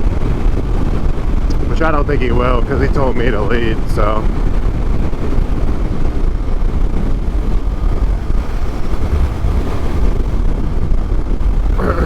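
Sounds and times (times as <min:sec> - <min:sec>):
wind buffeting microphone: 0:00.0 - 0:12.0
motorcycle engine rumble: 0:02.4 - 0:12.0.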